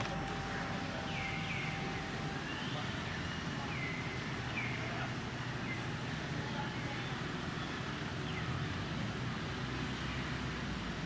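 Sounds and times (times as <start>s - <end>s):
low hum: 0.0s - 4.7s
bird chirping: 0.0s - 5.0s
steady background noise: 0.0s - 11.0s.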